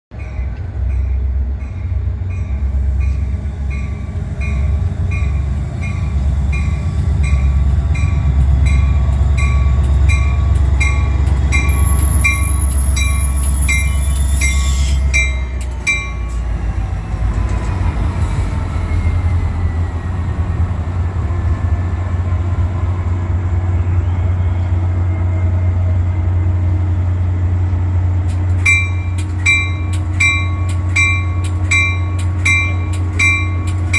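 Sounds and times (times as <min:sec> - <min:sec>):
diesel locomotive rumbling: 0:00.1 - 0:33.9
high-pitched squeal: 0:10.8 - 0:15.3.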